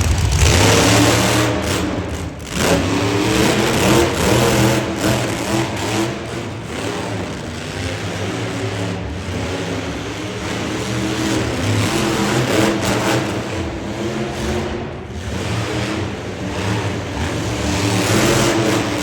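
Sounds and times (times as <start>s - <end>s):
truck engines revving: 0.0s - 19.0s.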